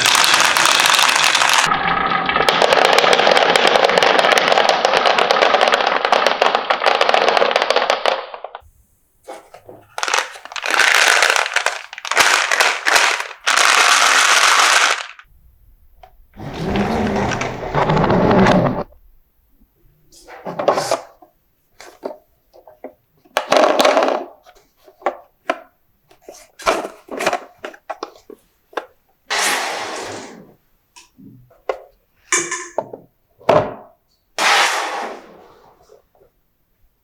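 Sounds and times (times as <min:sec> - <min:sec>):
marbles rolling on wooden track: 0:00.0 - 0:08.2.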